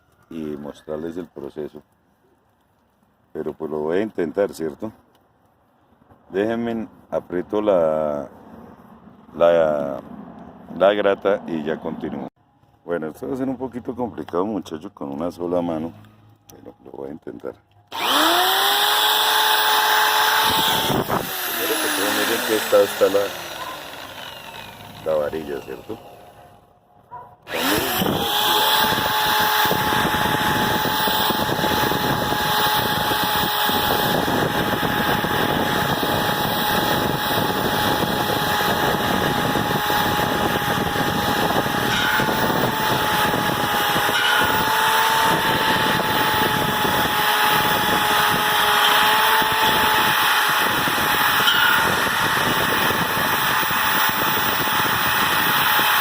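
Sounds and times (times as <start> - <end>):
electric drill whining: 17.9 - 26.5, 27.4 - 56.0
wire brush scraping steel: 41.8 - 56.0.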